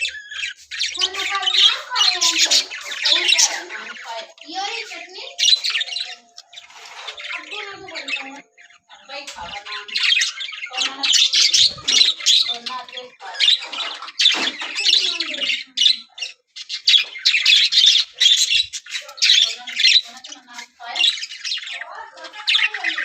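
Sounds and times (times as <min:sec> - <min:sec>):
budgerigars chattering and squawking: 0:00.0 - 0:23.0.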